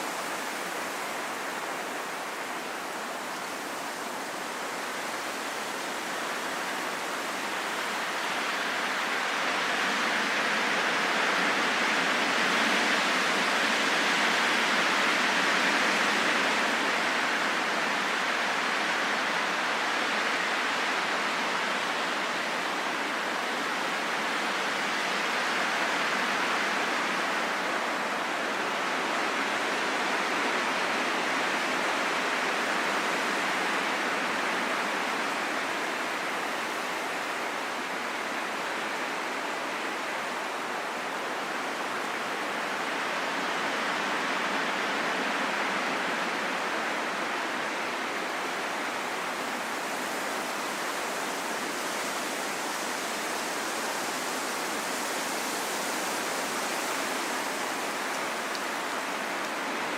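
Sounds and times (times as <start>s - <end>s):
steady wind blowing: 0.0s - 59.9s.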